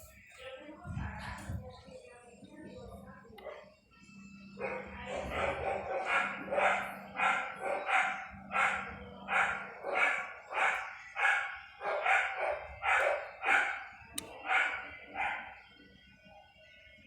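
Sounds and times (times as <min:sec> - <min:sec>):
dog barking: 0:04.6 - 0:15.6.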